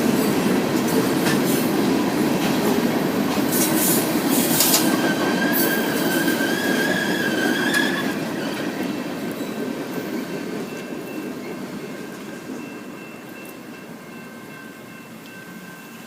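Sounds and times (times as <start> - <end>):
freight cars rolling on rails: 0.0 - 16.0
train wheel squeal: 3.6 - 16.0.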